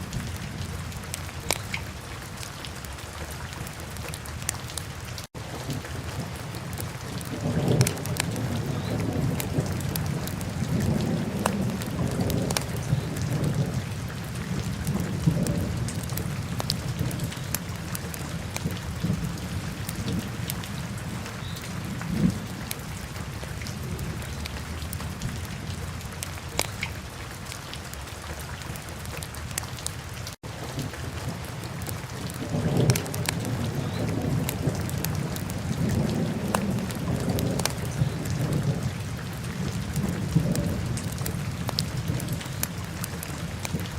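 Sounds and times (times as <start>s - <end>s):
fire crackling and popping: 1.4s - 1.8s, 26.5s - 26.9s.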